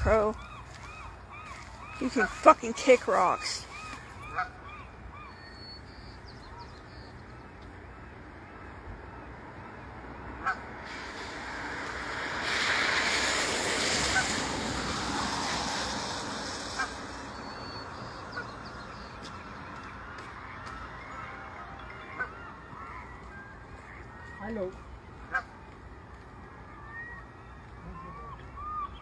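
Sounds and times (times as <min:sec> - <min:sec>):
geese honking: 0:00.0 - 0:05.8, 0:10.4 - 0:11.7, 0:12.3 - 0:25.6
broad rushing noise: 0:08.0 - 0:27.5.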